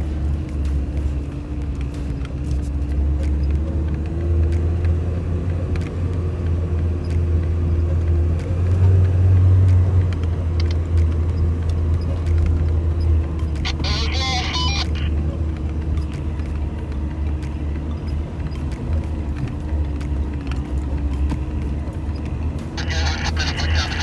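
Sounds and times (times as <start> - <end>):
vehicle engine and tyres rumbling: 0.0 - 24.0.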